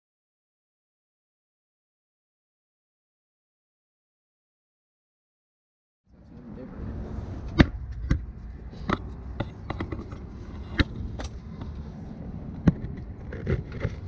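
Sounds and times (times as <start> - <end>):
low background rumble: 6.1 - 14.0.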